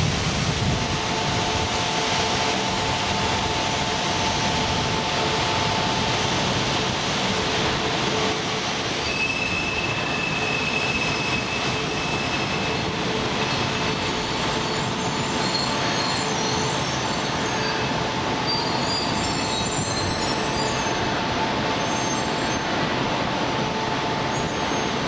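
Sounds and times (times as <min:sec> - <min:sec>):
train pulling into platform: 0:00.0 - 0:25.0
wheel and brake squeals: 0:08.3 - 0:21.2, 0:21.8 - 0:22.8, 0:24.2 - 0:25.0.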